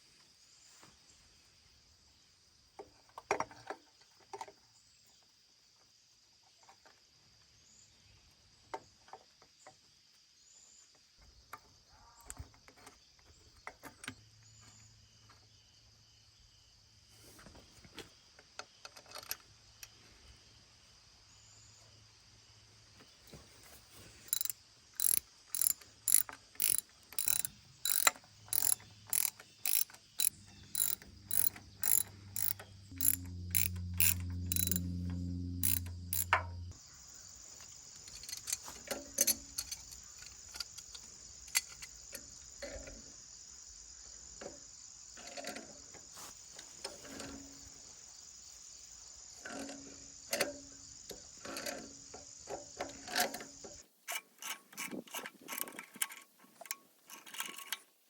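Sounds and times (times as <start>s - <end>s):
hand tool clicking: 24.3s - 36.7s
low hum: 30.3s - 36.8s
high-pitched whine: 32.4s - 36.7s.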